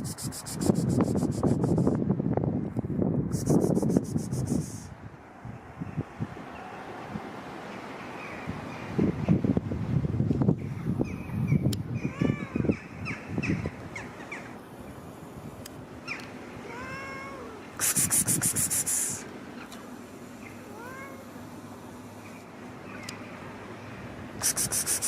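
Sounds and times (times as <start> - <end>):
rapid high-pitched rattling pulses: 0.0 - 1.9, 3.3 - 4.9, 17.8 - 19.2, 24.4 - 25.0
cat meowing: 12.0 - 12.7, 16.6 - 17.6, 20.7 - 21.3.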